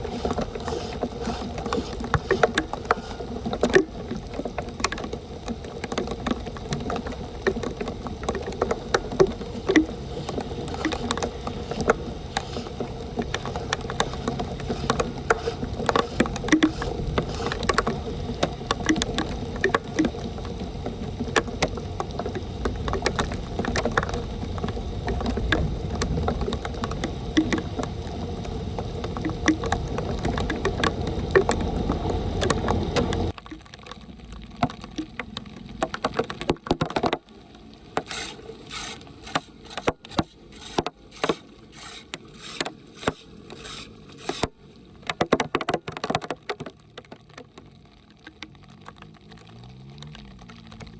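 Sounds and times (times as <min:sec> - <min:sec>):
small knocks and scrapes: 0:00.0 - 0:20.1, 0:37.9 - 0:47.7
water rushing into street drain: 0:00.0 - 0:50.9.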